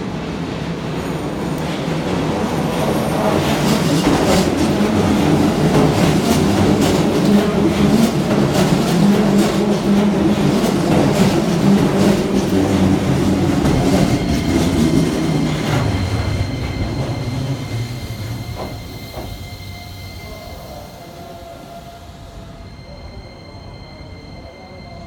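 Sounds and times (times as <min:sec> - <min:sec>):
train clickety-clack over rail joints: 0:00.8 - 0:20.2.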